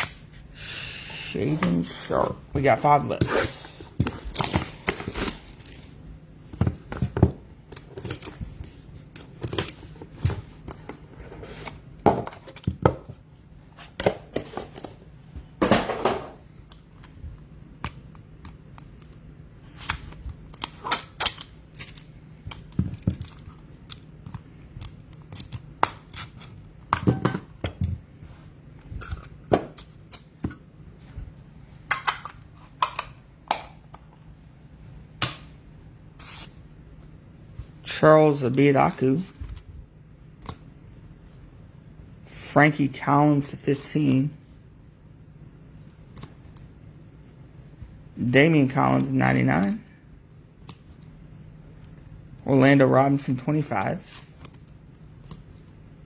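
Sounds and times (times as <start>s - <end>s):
wrappers tearing and crinkling: 4.2s - 6.0s.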